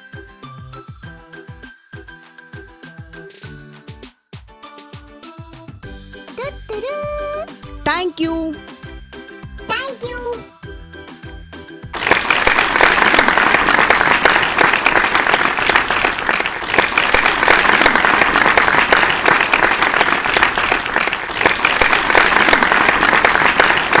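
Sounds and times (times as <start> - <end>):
crowd applauding: 12.0 - 24.0.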